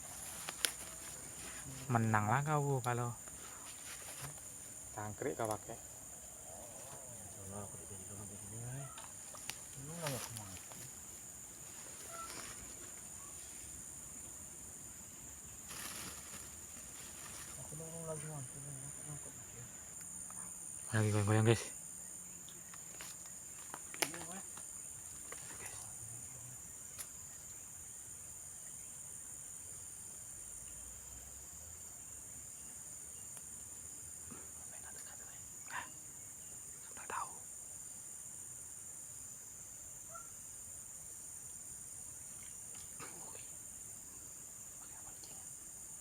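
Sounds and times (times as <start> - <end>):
brief rustle: 0.0 - 1.9
insects buzzing: 0.0 - 46.0.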